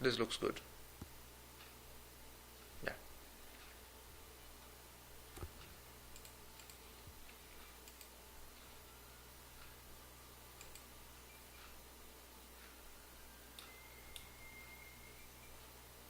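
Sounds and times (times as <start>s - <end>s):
low room hum: 0.0s - 16.0s
computer mouse clicks: 5.3s - 8.7s, 10.6s - 10.9s.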